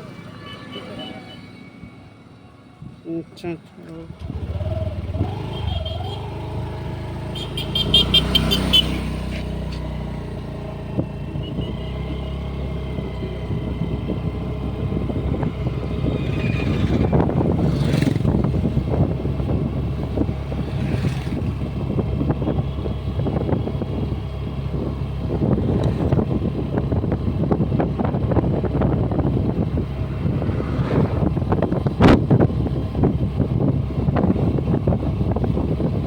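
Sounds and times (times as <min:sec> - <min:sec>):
scooter engine running: 0:04.1 - 0:36.0.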